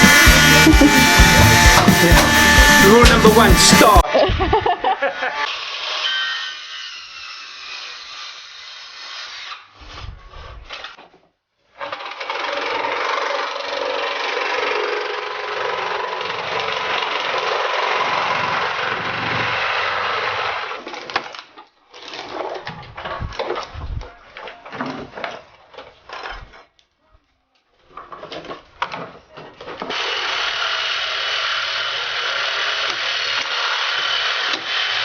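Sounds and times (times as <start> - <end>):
power saw cutting wood: 0.0 - 4.1, 5.0 - 10.1, 11.8 - 21.0, 29.7 - 35.0.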